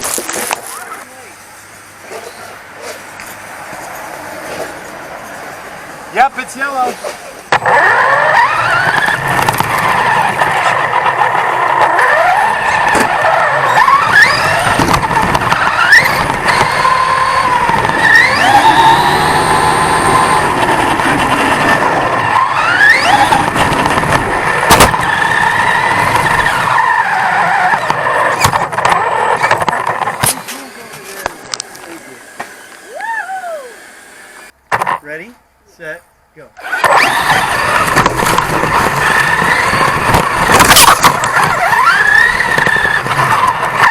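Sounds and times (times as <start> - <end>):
rushing rattling ride noise: 3.8 - 32.1, 36.6 - 43.9
toy truck motor whining: 7.6 - 34.5, 36.6 - 43.9.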